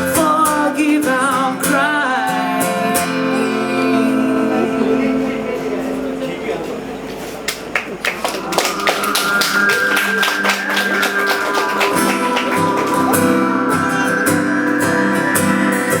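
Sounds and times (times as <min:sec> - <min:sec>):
guitar strumming: 0:00.0 - 0:16.0
lower instrumental notes: 0:03.3 - 0:16.0.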